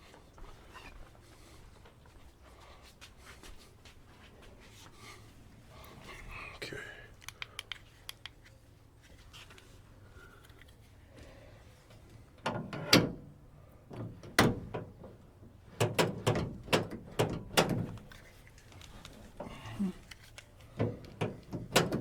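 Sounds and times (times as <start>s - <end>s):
metallic door latch clacks: 12.4s - 18.1s, 20.8s - 22.0s.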